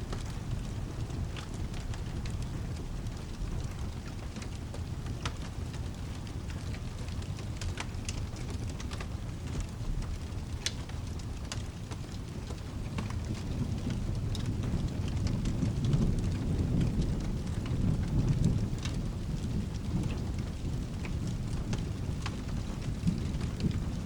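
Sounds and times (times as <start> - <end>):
low rolling thunder: 0.0 - 7.2, 12.0 - 24.0
steady rain: 0.0 - 24.0
sharp ticks and crackles: 0.1 - 24.0.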